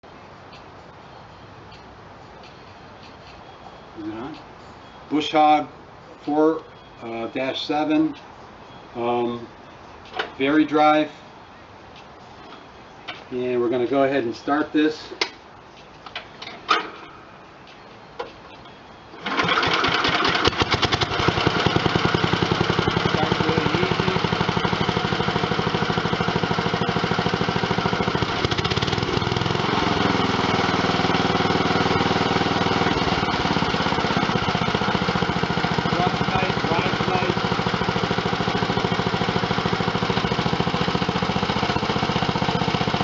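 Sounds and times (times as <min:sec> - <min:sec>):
small engine chugging: 0:19.2 - 0:43.0.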